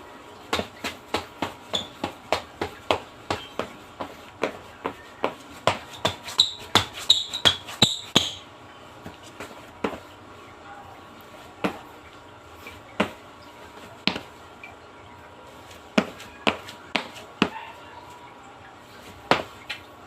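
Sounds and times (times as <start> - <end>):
short high squeaks: 6.4 - 8.4.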